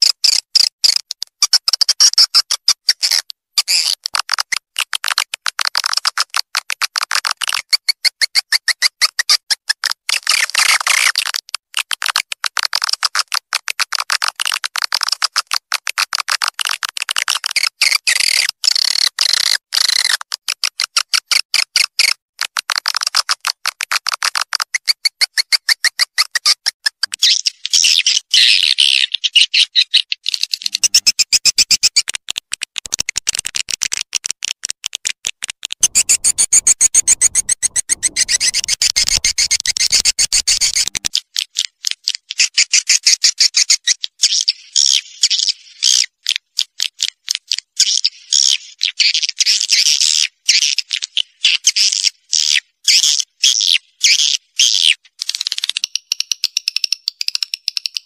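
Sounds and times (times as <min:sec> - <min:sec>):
swiftlets chirping and twittering: 0:35.8 - 0:41.2.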